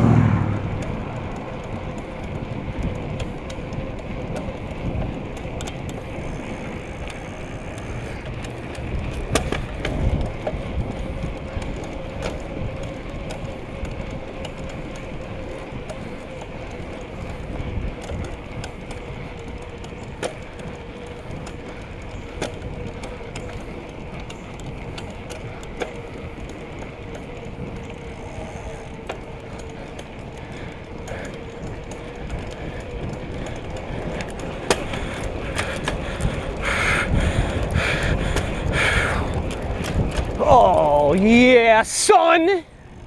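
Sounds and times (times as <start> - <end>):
wind on microphone: 0.0 - 41.8
bicycle tyres rolling: 0.0 - 43.0
bike rattling clicks: 0.0 - 43.0.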